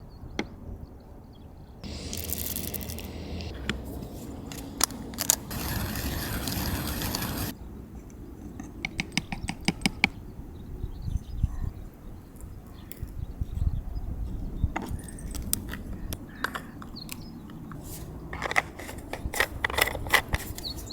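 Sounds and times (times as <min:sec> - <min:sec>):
clicks and scrapes of coffee gear: 0:01.8 - 0:03.8, 0:04.5 - 0:08.8, 0:14.8 - 0:20.9
steady hiss: 0:01.8 - 0:07.5.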